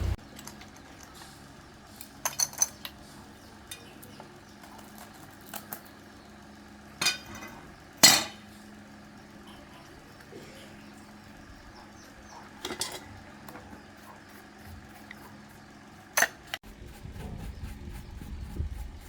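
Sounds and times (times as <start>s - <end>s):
metal tools clinking: 2.2s - 3.0s, 12.6s - 13.2s.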